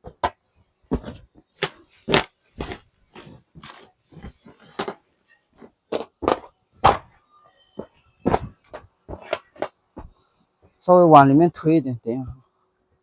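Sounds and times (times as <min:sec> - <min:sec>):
goods thudding and rustling: 0:00.9 - 0:05.0, 0:07.8 - 0:10.2.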